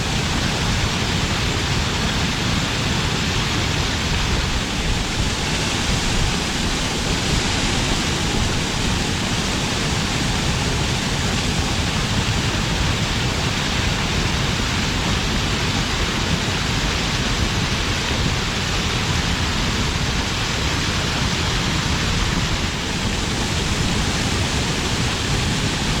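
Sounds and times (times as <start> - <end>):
water pouring over a dam: 0.0 - 26.0.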